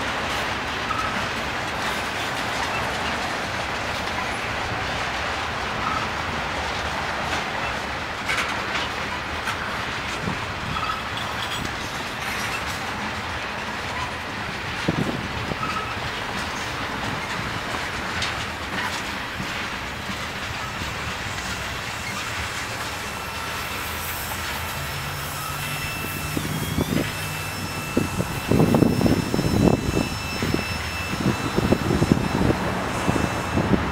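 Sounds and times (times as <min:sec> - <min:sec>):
freight train wheels clacking: 0:00.0 - 0:33.9
high wheel squeal: 0:00.9 - 0:01.2, 0:05.8 - 0:06.2, 0:10.6 - 0:14.3, 0:14.9 - 0:18.9, 0:20.5 - 0:33.9.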